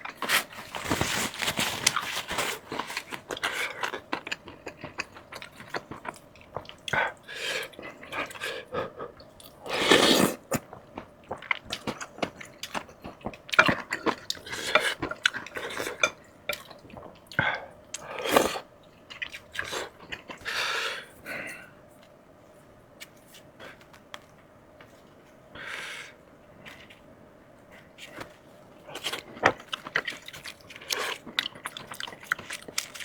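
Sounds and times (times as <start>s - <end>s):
wet chewing: 28.9s - 33.0s.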